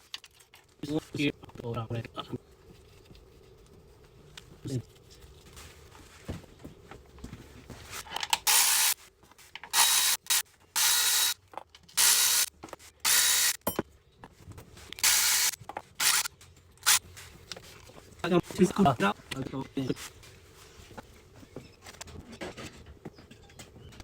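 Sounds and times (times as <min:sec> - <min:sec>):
hand ratchet clicking: 0:08.4 - 0:09.0, 0:09.7 - 0:12.5, 0:13.1 - 0:13.6, 0:15.0 - 0:17.0.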